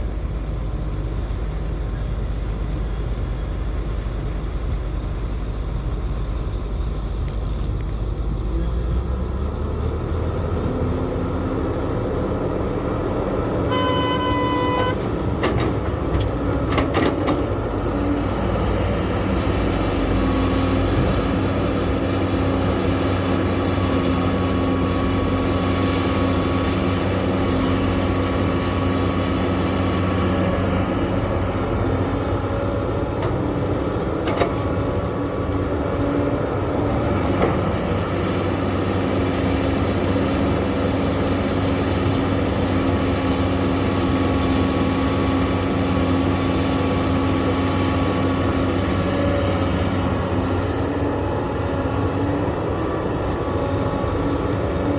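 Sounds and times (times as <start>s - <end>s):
heavy machinery engines running: 0.0s - 54.9s
horn sounding: 13.6s - 15.2s.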